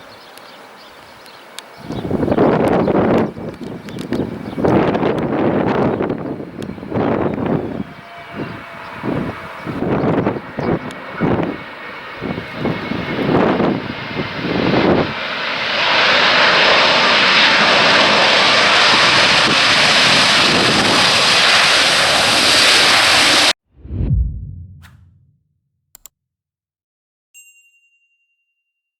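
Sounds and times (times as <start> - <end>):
wind buffeting microphone: 1.8 - 15.2, 23.8 - 25.3
jet engine roar: 6.3 - 25.4
low whoosh: 23.7 - 25.6.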